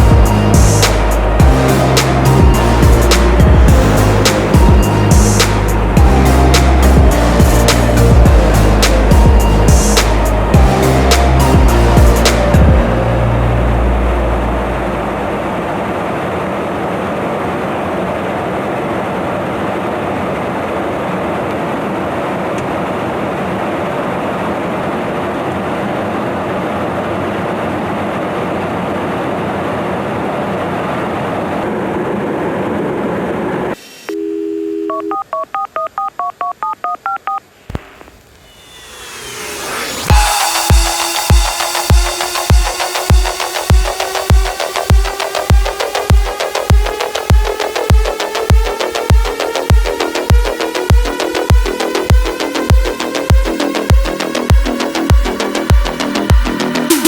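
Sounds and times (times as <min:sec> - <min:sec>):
steady rushing noise: 0:00.0 - 0:34.0, 0:37.7 - 0:57.0
telephone dial tone: 0:34.1 - 0:37.4.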